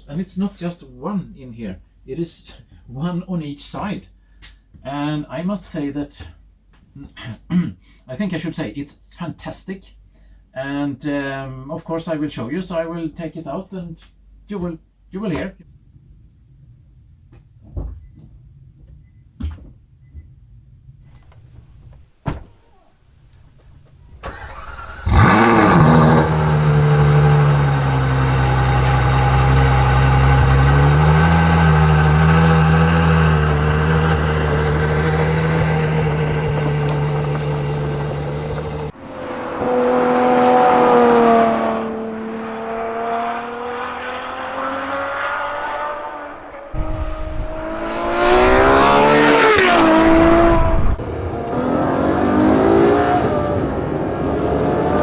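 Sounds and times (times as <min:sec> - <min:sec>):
synthetic engine drone: 0:25.0 - 0:44.2, 0:46.7 - 0:52.3
click: 0:54.5 - 0:55.0.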